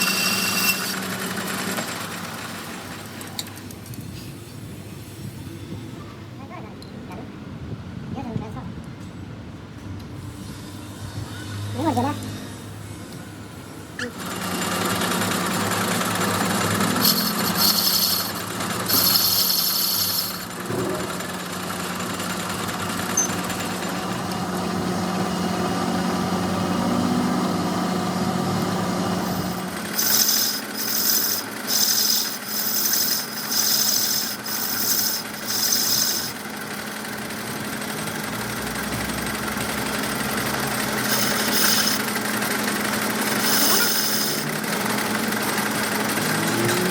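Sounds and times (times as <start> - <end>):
workshop machine humming: 0.0 - 7.8, 9.2 - 46.9
short high hissing rasps: 16.8 - 20.5, 30.0 - 36.4, 41.0 - 42.1, 43.3 - 44.5.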